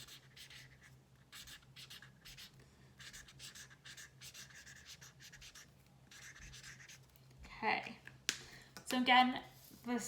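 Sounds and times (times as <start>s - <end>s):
marker scratching on paper: 0.0s - 7.1s.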